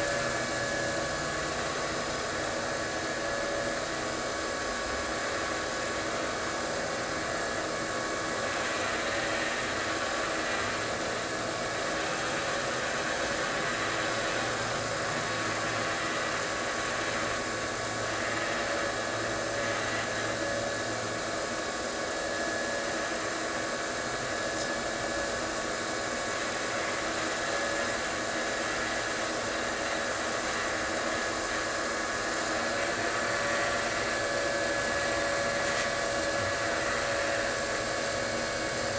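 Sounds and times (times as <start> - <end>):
lathe motor whine: 0.0 - 38.9
wood sanding hiss: 8.2 - 38.9.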